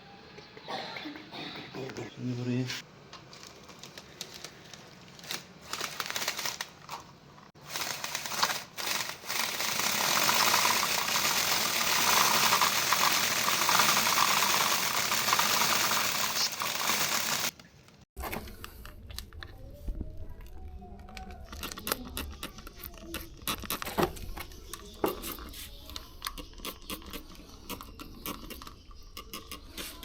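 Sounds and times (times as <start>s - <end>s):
bicycle chain rattling: 7.7s - 17.5s.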